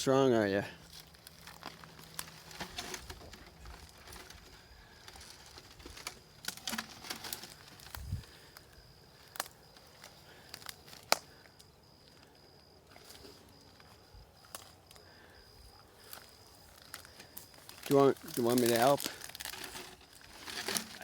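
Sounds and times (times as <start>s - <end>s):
wood and brush rustling and knocking: 0.9s - 8.4s, 16.0s - 21.0s.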